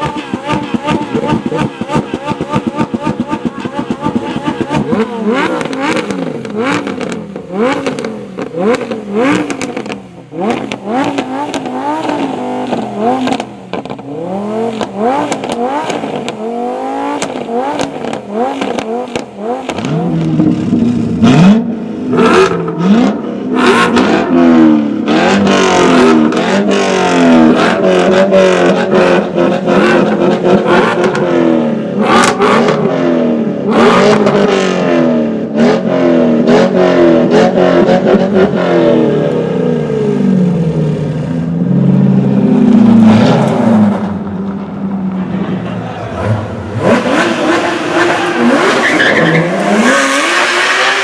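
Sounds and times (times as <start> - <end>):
exhaust cracks: 0.0 - 16.4, 42.2 - 51.0
car engine revving hard: 0.0 - 44.6, 45.2 - 51.0.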